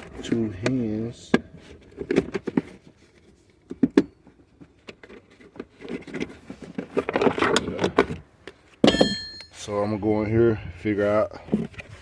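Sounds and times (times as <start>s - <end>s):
rustling: 1.5s - 8.8s.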